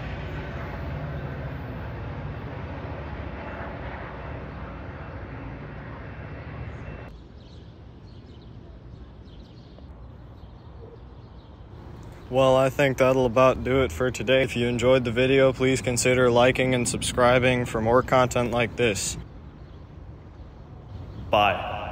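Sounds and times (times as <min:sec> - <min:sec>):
diesel train pulling away: 0:00.0 - 0:07.1
outdoor background noise: 0:00.0 - 0:21.9.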